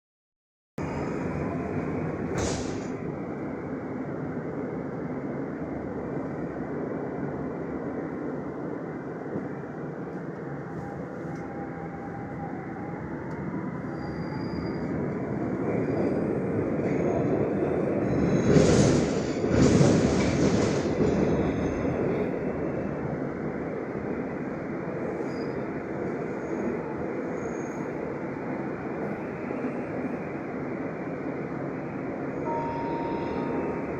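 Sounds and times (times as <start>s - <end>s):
train rumbling on rails: 0.8s - 33.9s
train wheels screeching: 13.8s - 15.0s.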